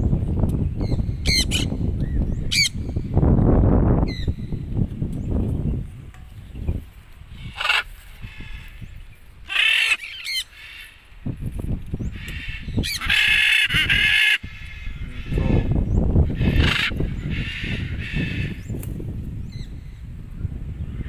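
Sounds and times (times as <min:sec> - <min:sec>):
bird screeching: 0:07.4 - 0:08.8, 0:09.5 - 0:11.0, 0:12.1 - 0:18.6.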